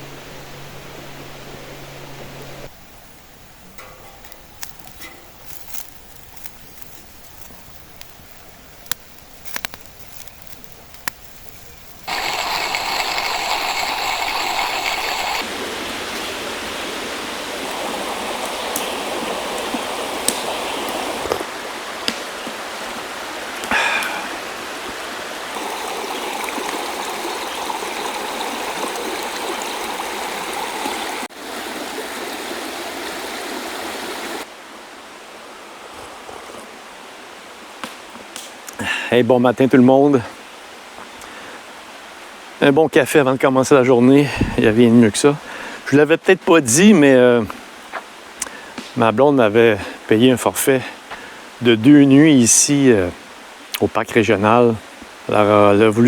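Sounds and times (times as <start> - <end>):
stream water rushing: 0.0 - 56.0
sharp clicks: 3.7 - 15.2.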